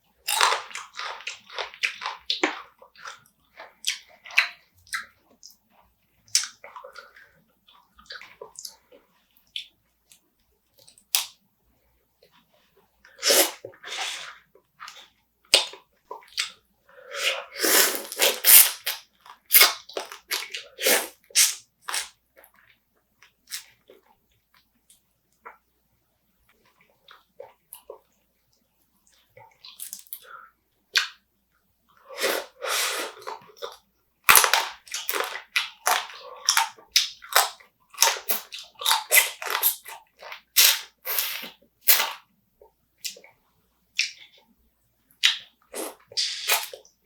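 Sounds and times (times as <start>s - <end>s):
wet chewing and crunching: 0.3s - 11.4s, 12.2s - 16.6s, 17.2s - 25.6s, 32.5s - 43.4s, 45.2s - 47.0s.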